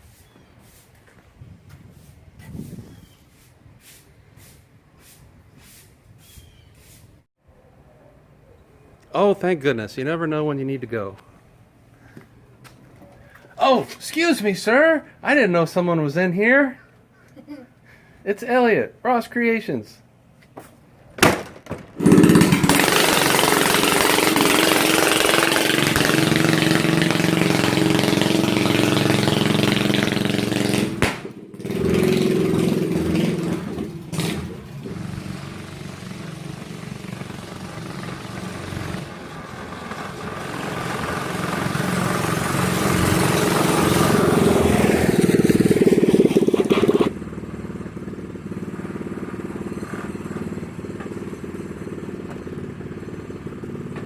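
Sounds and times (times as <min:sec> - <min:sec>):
small engine running: 0:22.0 - 0:54.0.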